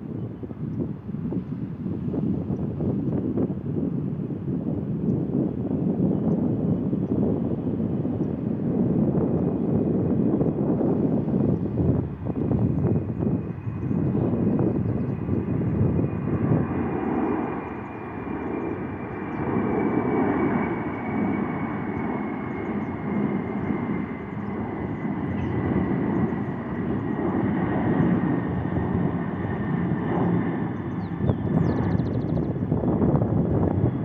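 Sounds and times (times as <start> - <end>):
jet engines at takeoff power: 0.0 - 34.0.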